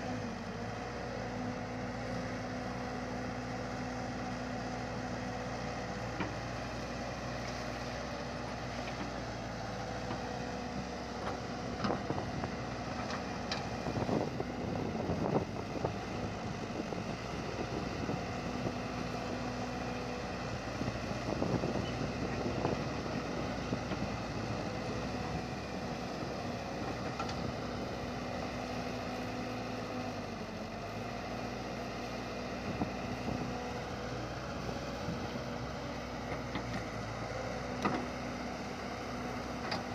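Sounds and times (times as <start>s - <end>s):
vehicle engine humming: 0.0s - 39.9s.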